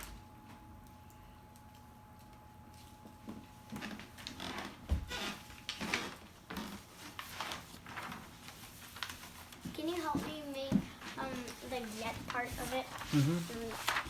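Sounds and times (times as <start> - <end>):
paper rustling and crinkling: 5.2 - 14.0.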